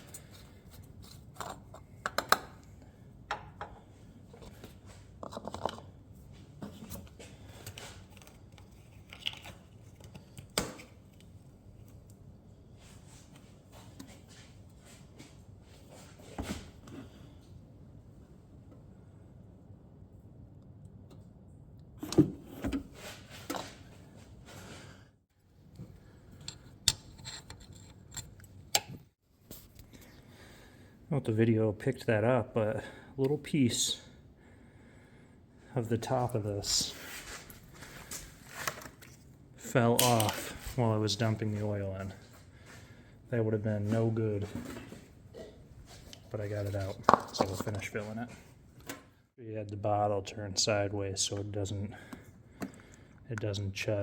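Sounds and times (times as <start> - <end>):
hands handling plastic parts: 0.0 - 5.9, 6.6 - 12.1, 37.2 - 39.3, 45.9 - 48.1
tools and parts clicking: 26.4 - 29.0.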